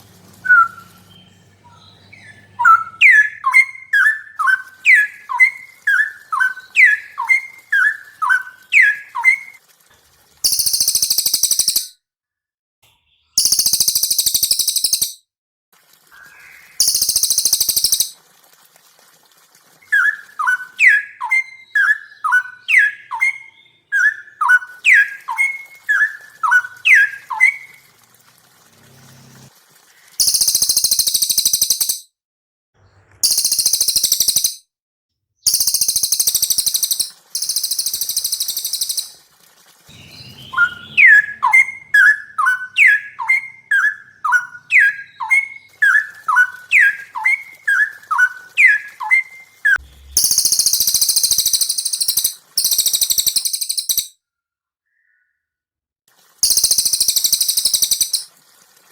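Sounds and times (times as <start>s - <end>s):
songbirds singing: 0.0s - 9.6s, 19.8s - 27.8s, 39.9s - 54.0s.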